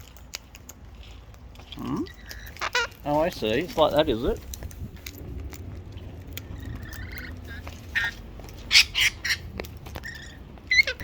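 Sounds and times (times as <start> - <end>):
parrots squawking and screeching: 1.7 - 3.6, 6.4 - 11.0.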